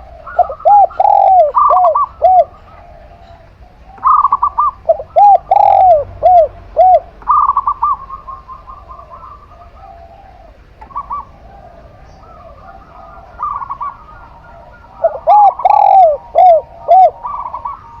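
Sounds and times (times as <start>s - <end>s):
rapid stuttering dove coos: 0.0s - 3.1s, 4.0s - 9.4s, 12.6s - 18.0s
doves cooing: 0.0s - 18.0s
loud arching dove coos: 0.0s - 18.0s.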